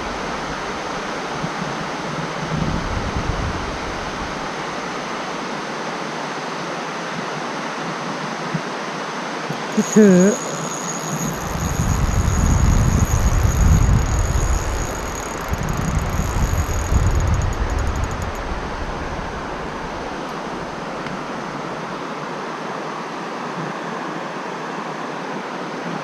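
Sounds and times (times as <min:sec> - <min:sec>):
wind buffeting microphone: 0:01.4 - 0:04.7, 0:11.2 - 0:21.3.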